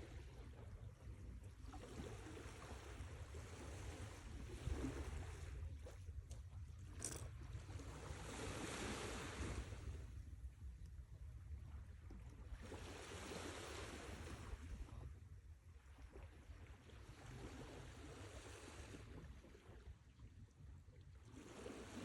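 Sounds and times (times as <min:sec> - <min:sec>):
sea waves washing ashore: 0:07.8 - 0:10.1, 0:12.5 - 0:14.8, 0:21.3 - 0:22.0.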